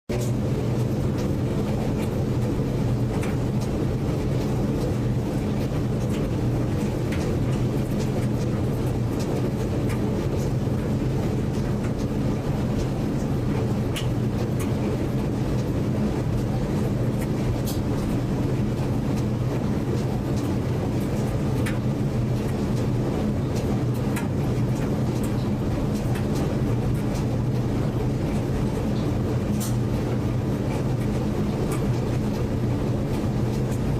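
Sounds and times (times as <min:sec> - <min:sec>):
washing machine running: 0:00.1 - 0:33.9.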